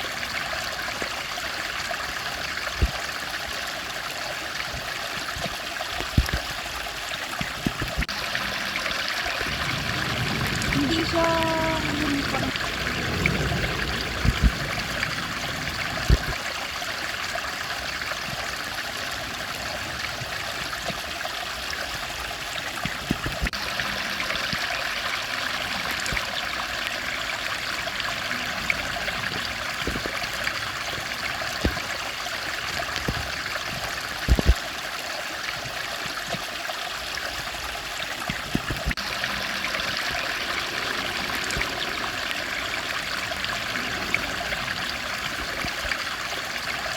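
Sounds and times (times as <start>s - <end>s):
stream flowing: 0.0s - 46.9s.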